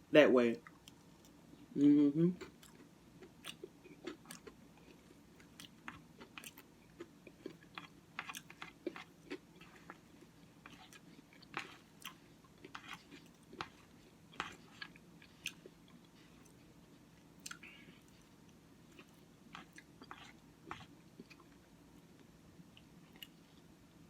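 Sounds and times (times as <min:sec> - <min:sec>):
person chewing with mouth smacks: 0:02.4 - 0:16.7, 0:17.3 - 0:21.6.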